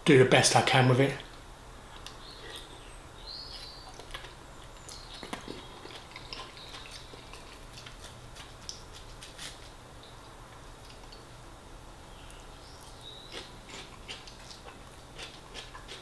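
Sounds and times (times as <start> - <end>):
man chewing food: 1.8 - 11.3, 12.2 - 16.0
wet mouth clicks and smacks: 3.9 - 9.4.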